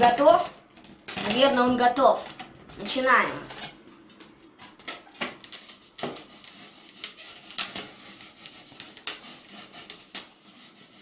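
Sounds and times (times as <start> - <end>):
balloon rubbing on hair: 5.1 - 11.0.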